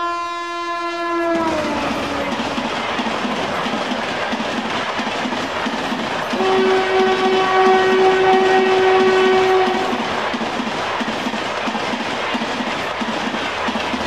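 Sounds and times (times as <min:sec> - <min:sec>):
train horn long note: 0:00.0 - 0:02.4, 0:06.4 - 0:10.0
train wheels clattering on rails: 0:01.1 - 0:14.0.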